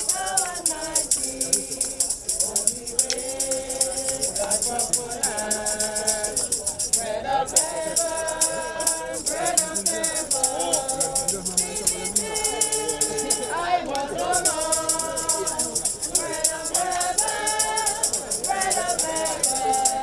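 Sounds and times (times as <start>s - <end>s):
group singing a hymn: 0.0s - 20.0s
shaker rhythm: 0.0s - 20.0s.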